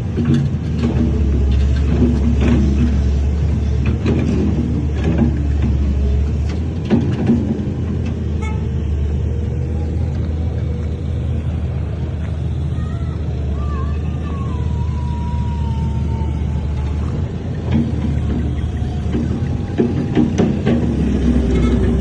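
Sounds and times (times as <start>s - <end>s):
metal clanks and knocks: 0.0s - 8.7s, 16.8s - 22.0s
diesel engine under load: 0.0s - 22.0s.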